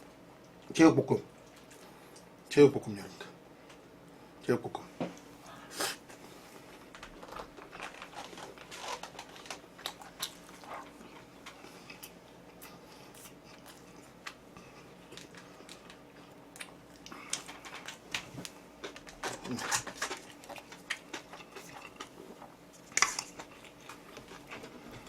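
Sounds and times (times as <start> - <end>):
person chewing and crunching: 6.9 - 25.0.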